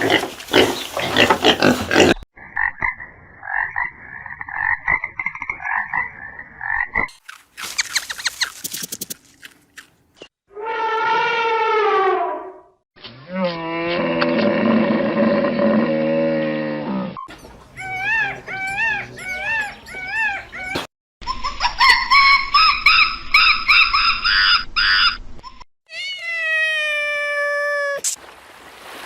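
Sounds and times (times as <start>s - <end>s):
short repeated chirping calls: 7.1s - 9.2s
rapid higher-pitched calls: 7.6s - 9.2s.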